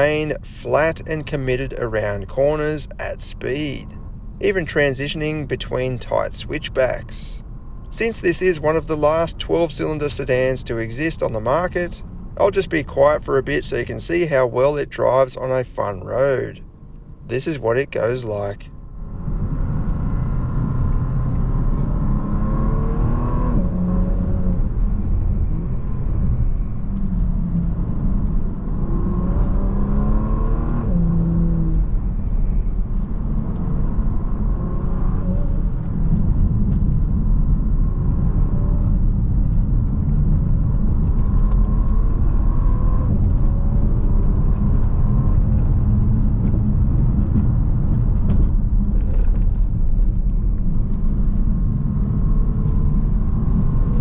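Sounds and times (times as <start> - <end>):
heavy low rumble: 0.0 - 22.5, 23.5 - 30.3, 31.0 - 54.0
car engine accelerating: 0.0 - 54.0
gear upshifts: 19.3 - 54.0.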